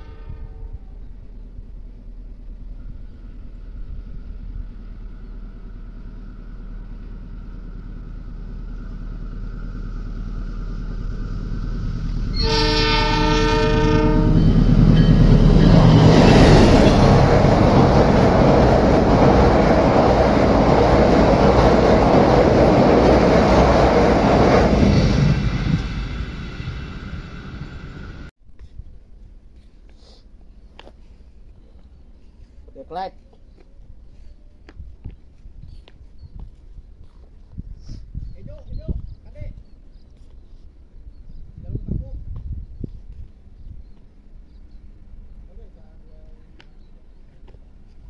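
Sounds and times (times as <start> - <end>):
train horn: 0.0 - 1.0, 12.3 - 16.0
diesel locomotive engine rumble: 0.0 - 28.3, 29.2 - 48.0.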